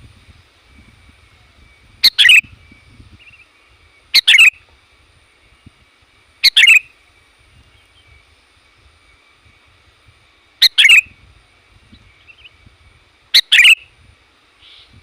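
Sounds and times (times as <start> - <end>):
bulbul chattering calls: 1.3 - 4.6, 6.4 - 8.2, 10.6 - 11.2, 13.3 - 13.9, 14.6 - 15.0.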